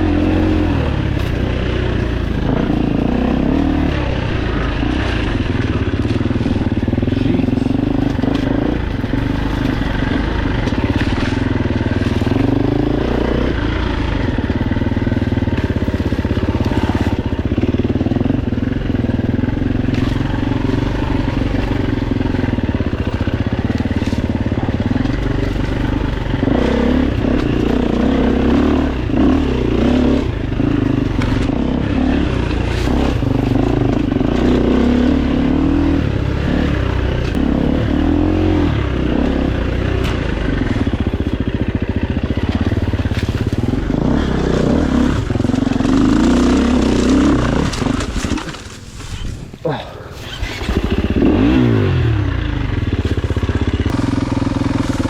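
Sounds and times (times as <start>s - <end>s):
dirt bike engine revving: 0.0s - 55.0s
bike knocking over rough ground: 40.0s - 49.6s.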